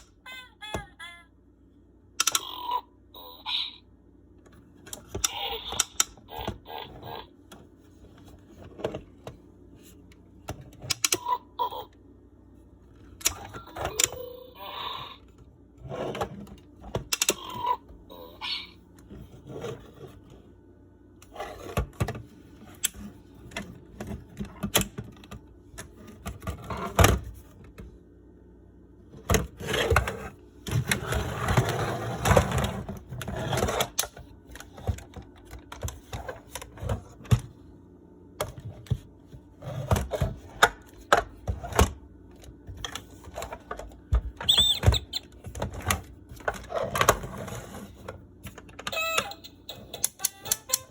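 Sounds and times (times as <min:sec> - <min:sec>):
short toy tones: 0:48.9 - 0:50.9.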